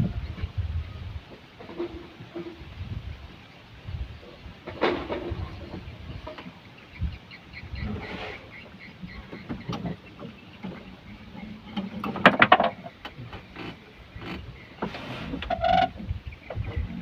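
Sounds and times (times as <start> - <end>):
boat gear knocking: 9.0 - 17.0.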